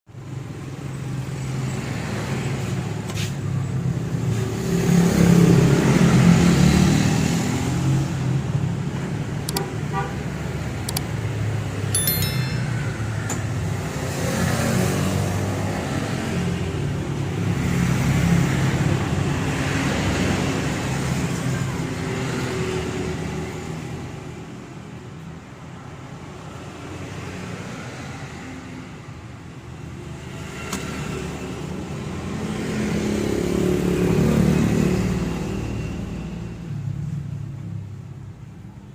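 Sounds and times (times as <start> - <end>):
motor vehicles passing: 30.1 - 37.4.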